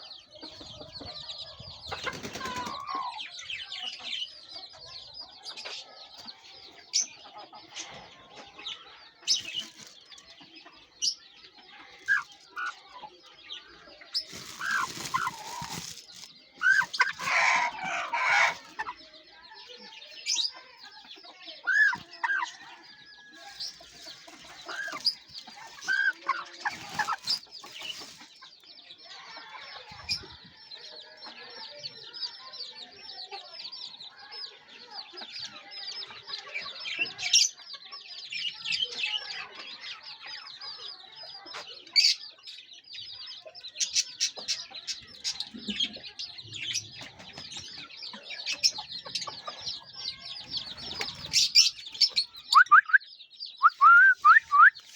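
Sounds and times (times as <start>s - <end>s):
chickens clucking: 0.0s - 54.9s
sharp chicken calls: 1.9s - 3.2s, 14.1s - 19.0s, 21.6s - 28.4s, 53.6s - 54.9s.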